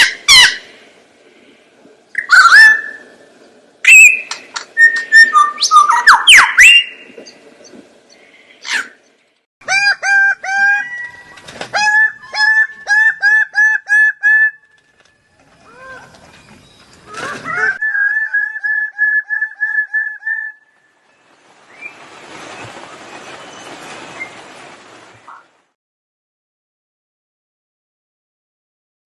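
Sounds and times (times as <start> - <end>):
bird whistles and calls: 2.2 - 3.2, 3.8 - 7.8.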